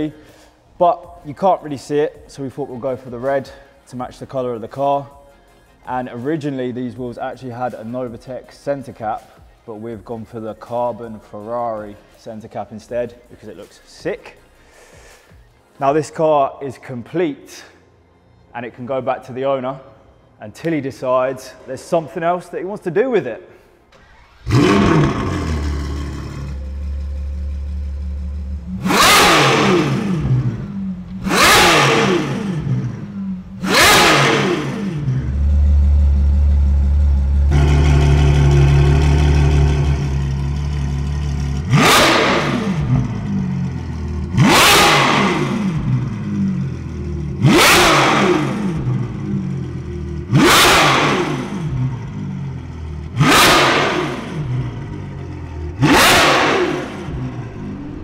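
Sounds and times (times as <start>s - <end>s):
car engine revving: 24.0s - 58.0s.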